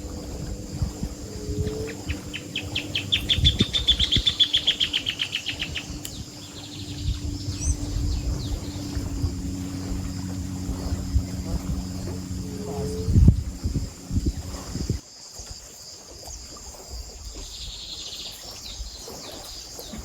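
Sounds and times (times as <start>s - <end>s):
bird trilling: 0.0s - 15.0s
low hum and rumble: 0.0s - 15.0s
rising whistles: 0.0s - 15.0s.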